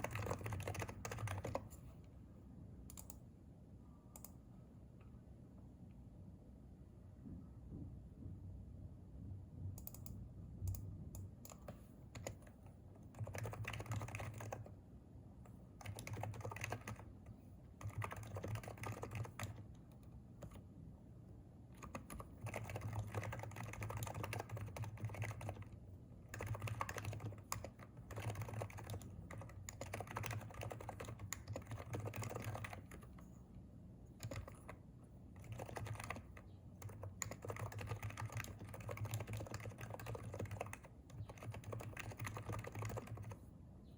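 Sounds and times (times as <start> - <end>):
keyboard typing: 0.0 - 1.8, 11.4 - 14.8, 15.8 - 20.6, 21.8 - 33.4, 34.1 - 34.8, 35.4 - 43.4.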